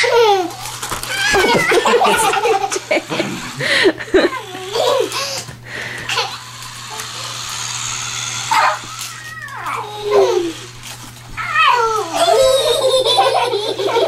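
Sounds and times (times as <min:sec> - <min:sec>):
young children squealing and babbling: 0:08.5 - 0:10.7, 0:11.4 - 0:12.8.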